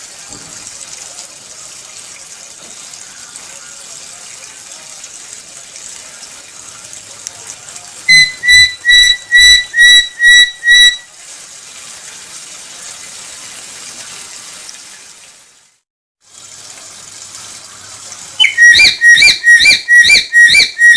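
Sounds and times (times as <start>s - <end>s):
parrot whistling notes: 8.1s - 11.1s, 18.4s - 20.9s.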